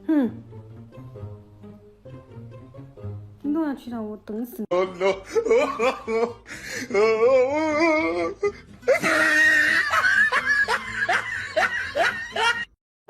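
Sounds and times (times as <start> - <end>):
person laughing hard: 4.8 - 12.7.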